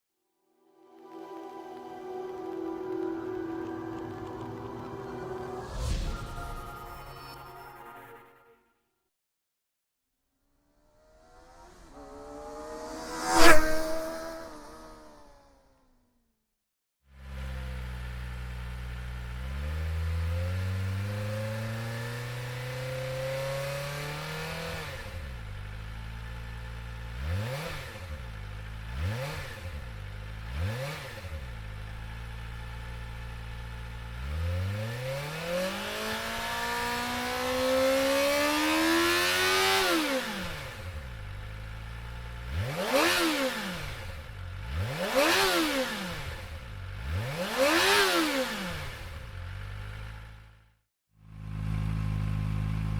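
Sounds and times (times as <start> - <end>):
motorcycle engine revving: 11.0 - 15.8, 17.2 - 50.6.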